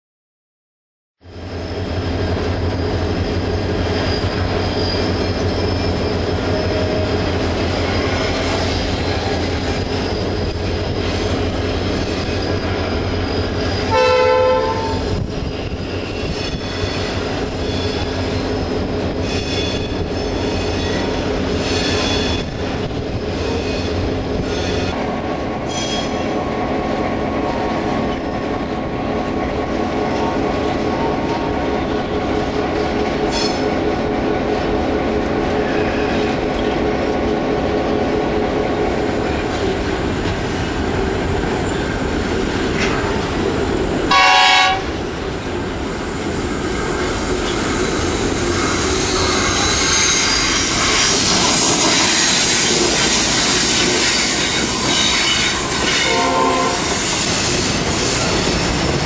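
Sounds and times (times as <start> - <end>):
diesel locomotive engine drone: 1.2 - 59.0
train wheels on rails: 1.2 - 59.0
train horn blast: 13.9 - 15.2, 44.1 - 45.0, 55.1 - 57.1.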